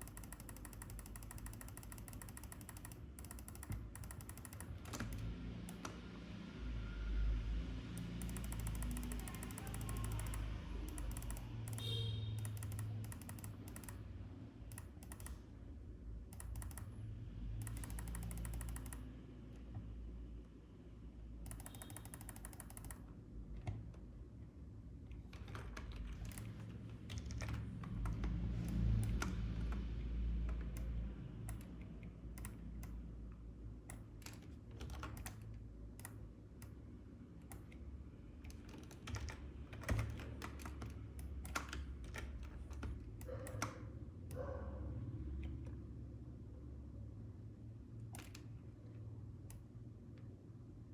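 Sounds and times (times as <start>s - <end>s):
computer keyboard typing: 0.0s - 6.0s, 8.0s - 15.5s, 16.2s - 19.2s, 21.4s - 23.9s, 25.2s - 33.1s, 33.8s - 36.8s, 38.4s - 44.4s, 48.1s - 48.5s.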